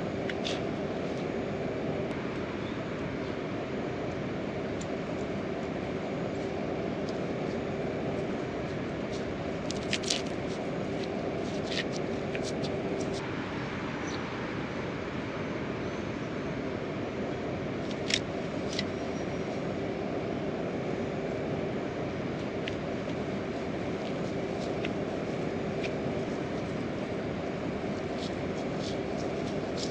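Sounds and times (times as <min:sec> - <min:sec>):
steady rain hiss: 0:16.8 - 0:29.9.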